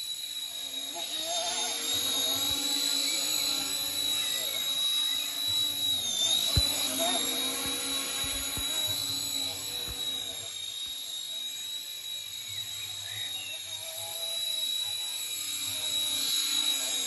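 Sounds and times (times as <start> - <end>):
model helicopter whine: 0.0 - 17.0.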